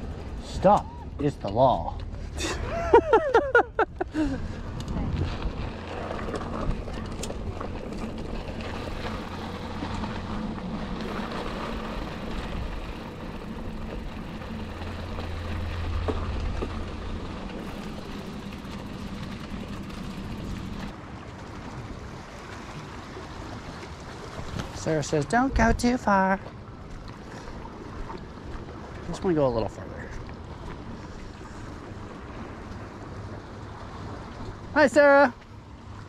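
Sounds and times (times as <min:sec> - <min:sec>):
vehicle engine hum: 0:00.0 - 0:22.0
wind: 0:00.0 - 0:36.0.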